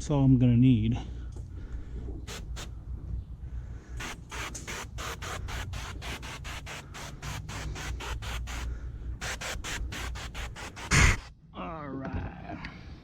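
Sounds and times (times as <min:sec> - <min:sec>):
rapid scrubbing strokes: 0:02.3 - 0:02.7, 0:04.0 - 0:11.3.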